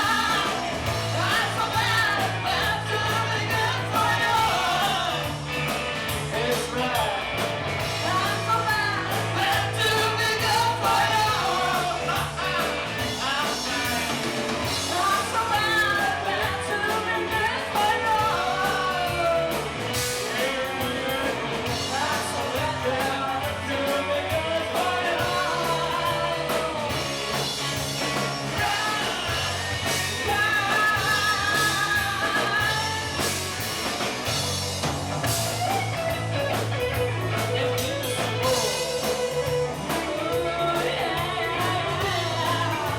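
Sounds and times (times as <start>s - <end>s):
woman singing: 0.0s - 5.3s, 14.9s - 19.6s, 28.6s - 33.2s, 40.1s - 42.9s
live rock band playing: 0.0s - 42.9s.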